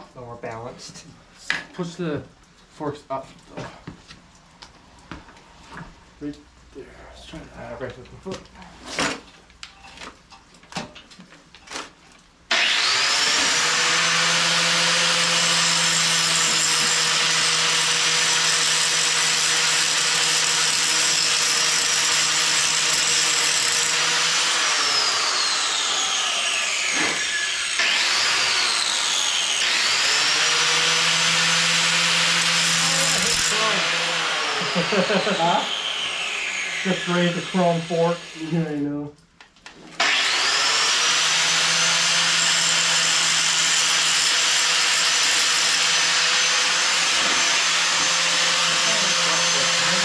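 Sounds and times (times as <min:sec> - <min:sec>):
electric power tool whining: 0:12.5 - 0:38.6, 0:40.0 - 0:50.0.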